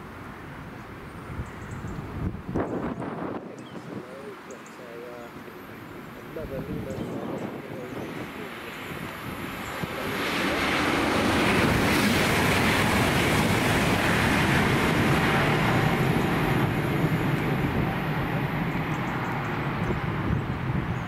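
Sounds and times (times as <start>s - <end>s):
train wheel and rail noise: 4.4s - 21.0s.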